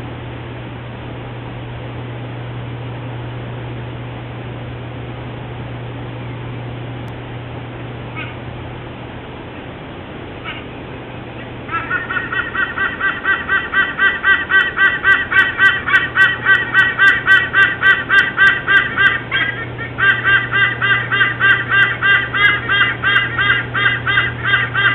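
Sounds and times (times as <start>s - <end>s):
rapid repeated bird calls: 8.1s - 8.5s, 10.4s - 24.9s.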